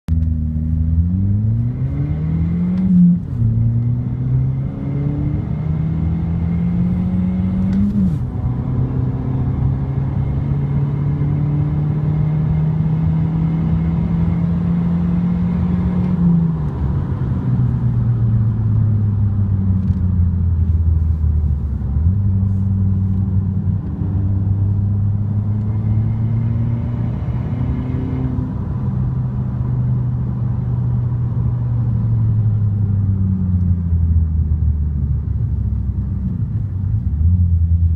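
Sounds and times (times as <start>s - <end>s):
car engine revving through gears: 0.1s - 18.0s, 21.9s - 33.7s.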